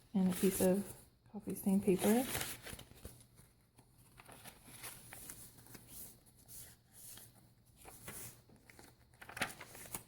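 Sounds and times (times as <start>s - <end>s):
paper pages rustling and turning: 0.2s - 1.1s, 1.7s - 10.0s.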